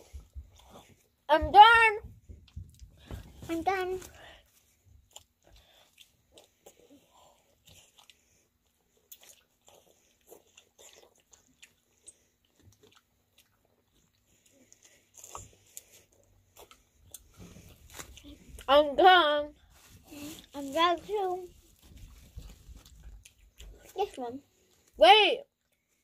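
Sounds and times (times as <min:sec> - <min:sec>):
biting and chewing fruit: 0:00.0 - 0:19.0, 0:19.6 - 0:25.0.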